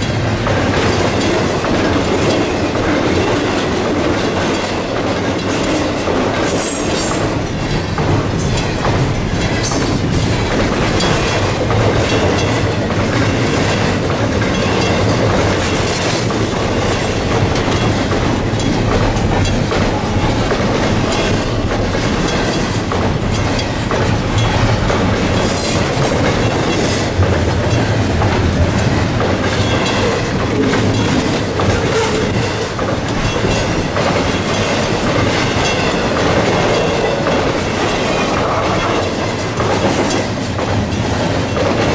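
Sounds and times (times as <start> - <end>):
train wheels rumbling on rail: 0.0 - 41.9
wheels clicking over rail joints: 0.0 - 41.9.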